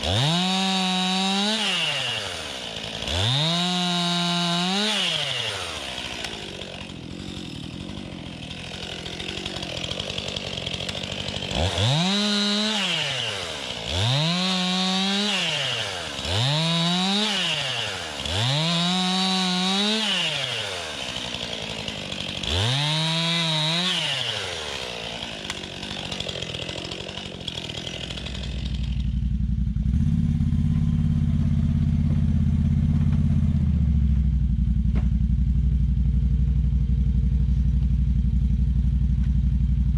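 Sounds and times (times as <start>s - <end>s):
chainsaw cutting: 0.0s - 35.8s
atv engine running: 29.0s - 39.9s.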